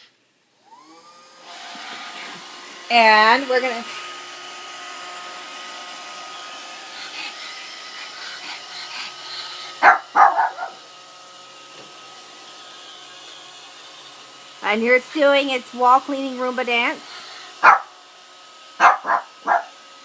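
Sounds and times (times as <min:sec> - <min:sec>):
robot vacuum humming: 0:00.6 - 0:20.0
dog barking: 0:09.8 - 0:10.8, 0:17.6 - 0:17.9, 0:18.8 - 0:19.8.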